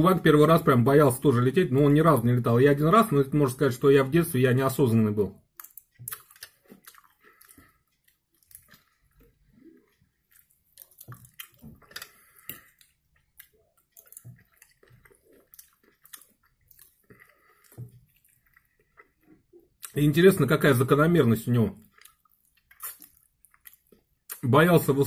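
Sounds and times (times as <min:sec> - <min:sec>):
person chewing with wet mouth clicks: 0:05.4 - 0:20.0, 0:21.8 - 0:24.4.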